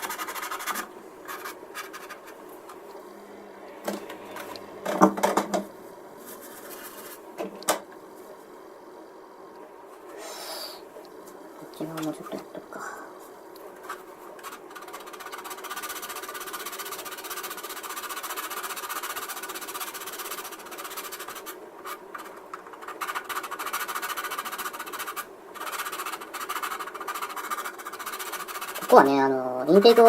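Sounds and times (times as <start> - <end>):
hand sanding plastic: 0.0 - 2.9, 6.2 - 7.3, 13.6 - 30.0.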